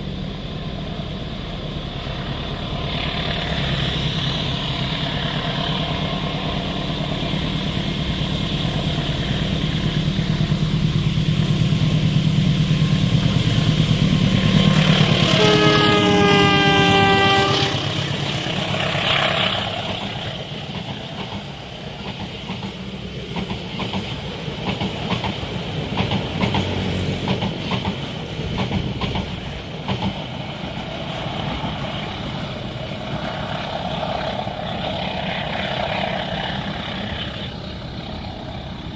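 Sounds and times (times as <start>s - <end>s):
locomotive engine: 0.0s - 38.9s
train horn: 14.6s - 19.7s.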